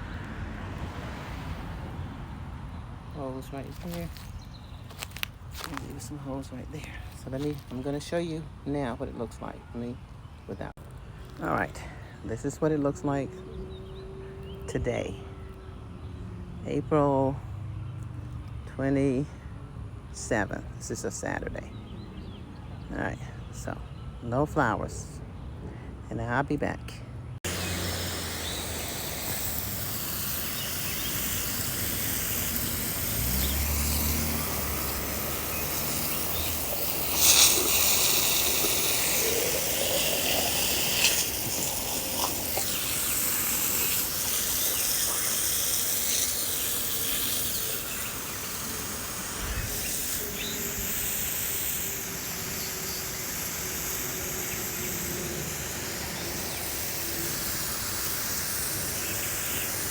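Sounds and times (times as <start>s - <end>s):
steady high hiss: 27.5s - 59.9s.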